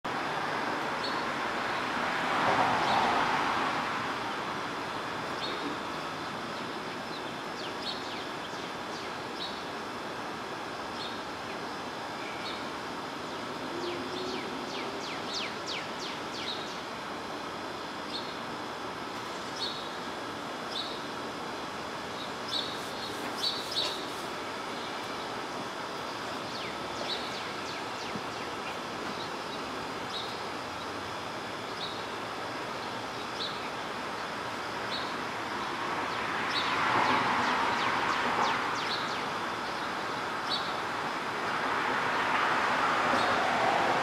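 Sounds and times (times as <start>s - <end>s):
street noise: 0.0s - 44.0s
sweeping bird chirps: 22.5s - 24.3s.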